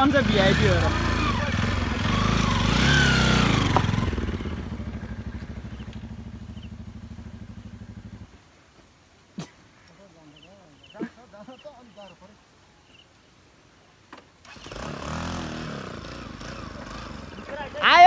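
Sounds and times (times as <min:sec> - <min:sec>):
motorcycle engine running: 0:00.0 - 0:08.4, 0:14.6 - 0:18.0.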